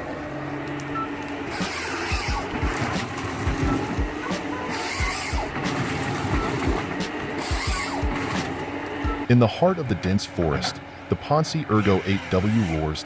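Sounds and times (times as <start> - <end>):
heavy machine engine humming: 0.0 - 13.0
hiss bursts: 1.4 - 3.0, 4.1 - 9.2.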